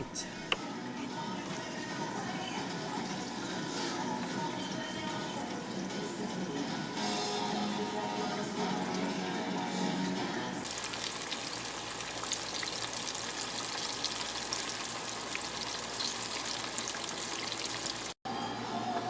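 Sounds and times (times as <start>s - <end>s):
food deep-frying in oil: 10.6s - 18.2s.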